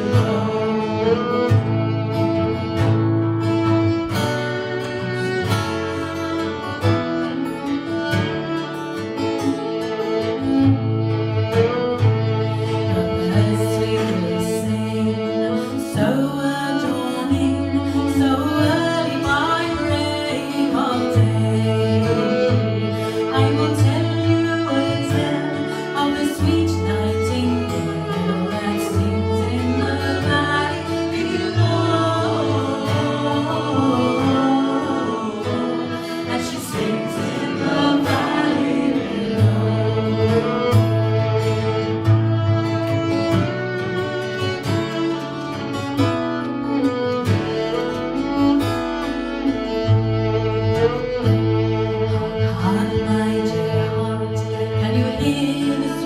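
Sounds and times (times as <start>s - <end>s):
folk trio playing and singing: 0.0s - 56.0s.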